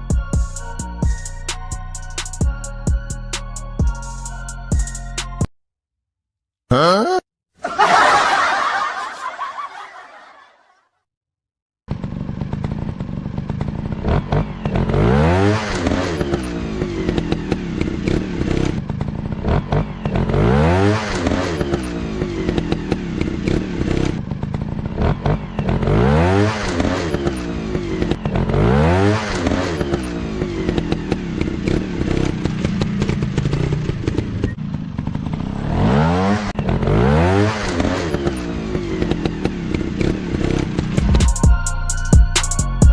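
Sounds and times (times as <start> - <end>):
motorcycle engine revving: 11.9 - 41.4.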